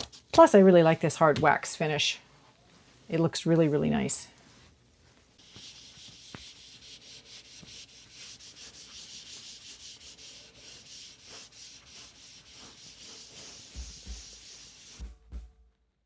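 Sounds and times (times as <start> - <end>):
hand rubbing on wood: 5.4 - 15.2
low drum beat: 13.7 - 15.8.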